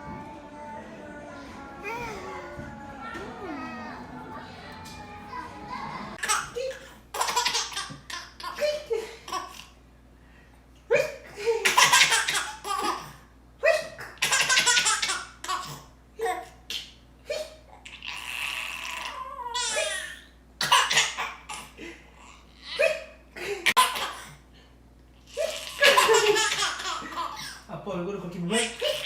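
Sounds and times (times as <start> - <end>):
baby giggling: 25.3 - 27.6.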